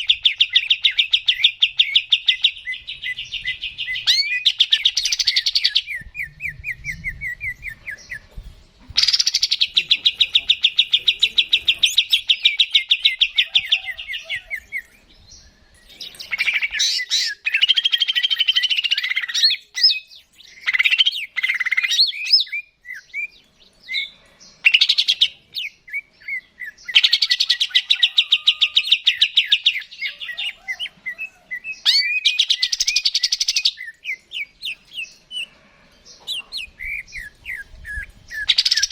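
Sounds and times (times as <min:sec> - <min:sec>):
bird singing with buzzy trills: 0:00.0 - 0:38.9.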